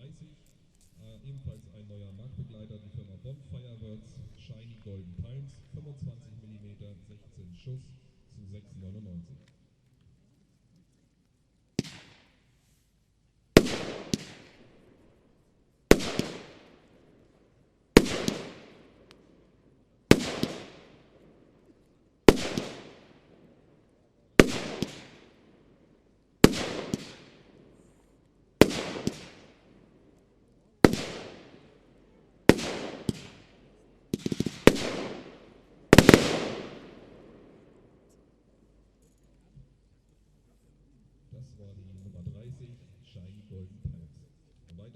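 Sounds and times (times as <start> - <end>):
firework bangs with hiss: 11.8 - 12.7, 13.6 - 14.6, 15.9 - 16.7, 18.0 - 18.8, 20.1 - 20.9, 22.3 - 23.2, 24.4 - 25.3, 26.4 - 27.4, 28.6 - 29.5, 30.9 - 31.6, 32.5 - 33.5, 34.1 - 36.9.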